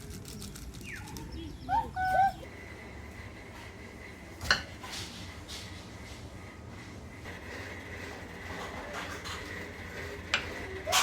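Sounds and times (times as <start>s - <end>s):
bird chirps: 0.3s - 2.4s.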